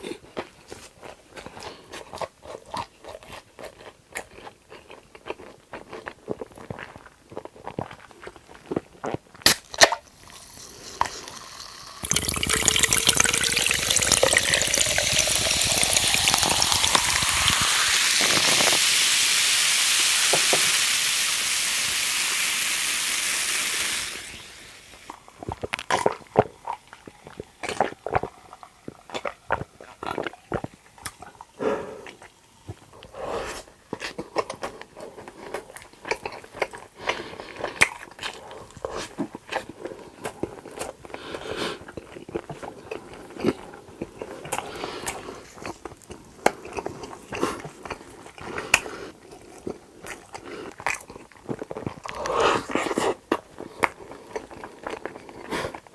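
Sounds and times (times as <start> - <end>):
close-miked eating clicks and bites: 0.3 - 18.8, 25.1 - 33.1, 33.8 - 55.9
liquid pouring into a glass: 11.2 - 22.5.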